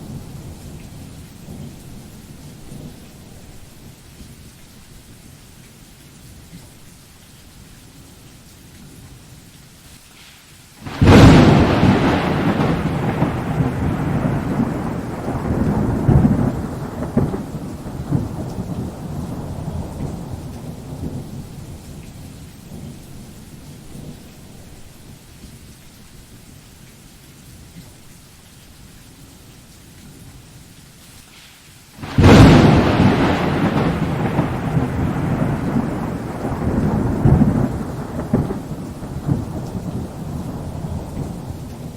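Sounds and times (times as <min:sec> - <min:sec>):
steady rain: 0:00.0 - 0:41.9
thunder rumbling: 0:10.8 - 0:24.9, 0:32.0 - 0:41.9.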